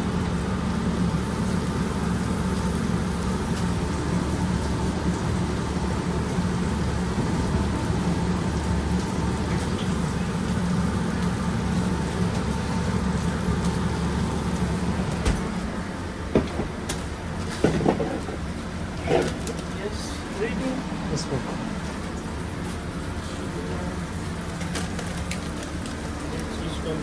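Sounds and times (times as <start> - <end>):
kitchen equipment humming: 0.0 - 27.0
sharp knocks and clatters: 16.3 - 19.6.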